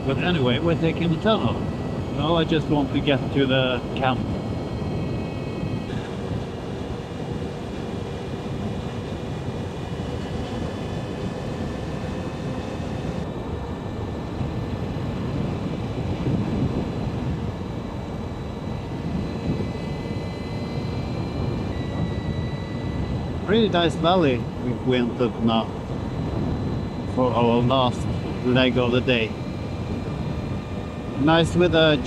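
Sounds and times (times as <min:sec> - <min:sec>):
high electric motor whine: 0:00.0 - 0:32.0
wind: 0:00.0 - 0:32.0.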